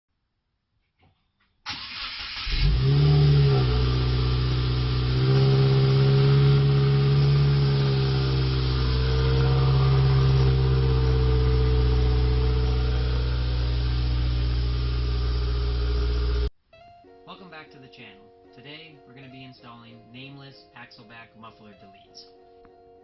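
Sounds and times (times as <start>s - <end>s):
car engine starting and idling: 1.7s - 16.5s
engine cranking: 1.7s - 16.5s.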